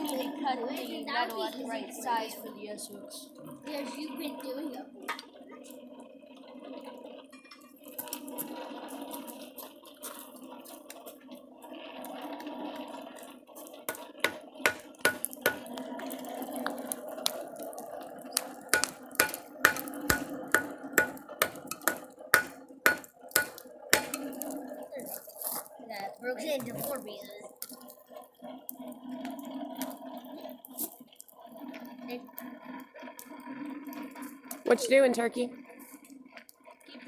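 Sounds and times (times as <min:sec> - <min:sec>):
hammer blows on steel anvil: 0:13.9 - 0:15.7, 0:18.8 - 0:24.2.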